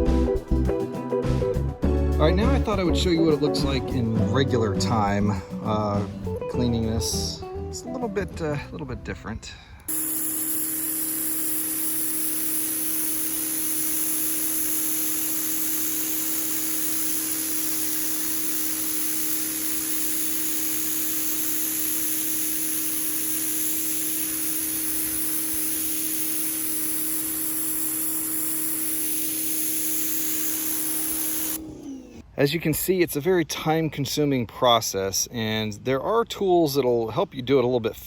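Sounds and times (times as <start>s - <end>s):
water jet hissing: 9.9s - 31.6s
pressure washer motor hum: 9.9s - 32.2s.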